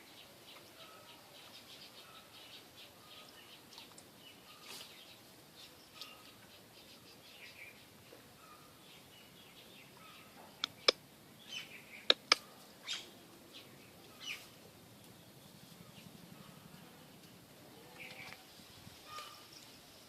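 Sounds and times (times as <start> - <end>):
small birds chirping: 0.0 - 20.0
sharp clicks: 12.1 - 12.4.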